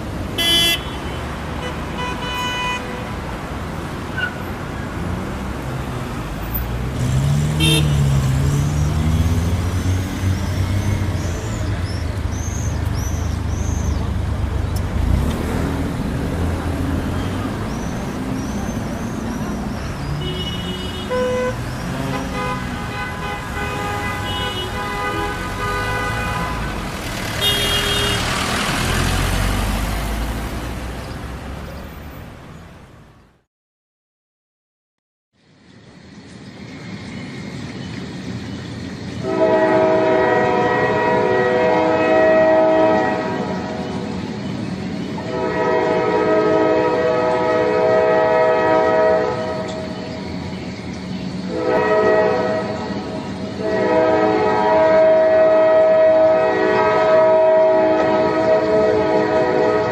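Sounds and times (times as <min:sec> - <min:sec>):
rumble of traffic: 0:00.0 - 0:33.5, 0:35.4 - 0:59.9
car horns honking: 0:00.4 - 0:03.2, 0:07.0 - 0:11.6, 0:16.6 - 0:19.2, 0:20.1 - 0:29.8, 0:39.2 - 0:43.8, 0:45.2 - 0:50.0, 0:51.5 - 0:59.9
engine revving: 0:06.6 - 0:12.3, 0:14.1 - 0:19.4, 0:25.3 - 0:31.6.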